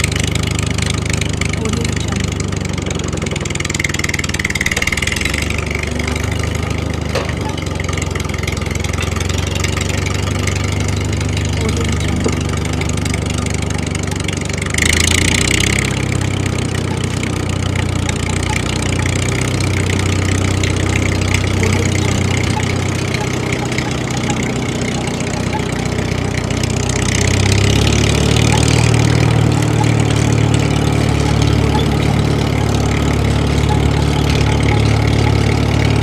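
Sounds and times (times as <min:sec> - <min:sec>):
engine running steadily: 0:00.0 - 0:36.0.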